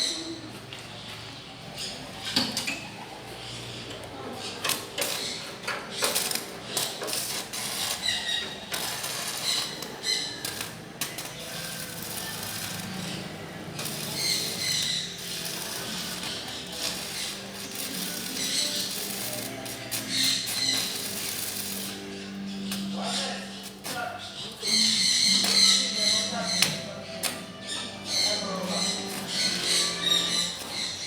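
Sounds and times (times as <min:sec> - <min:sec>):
hand tools clicking and knocking: 0:04.6 - 0:22.0, 0:23.6 - 0:31.0.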